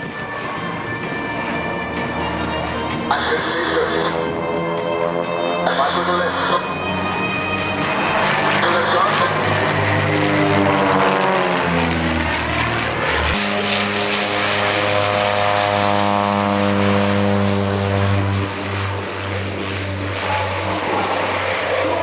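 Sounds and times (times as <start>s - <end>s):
propeller plane engine: 0.0s - 22.0s.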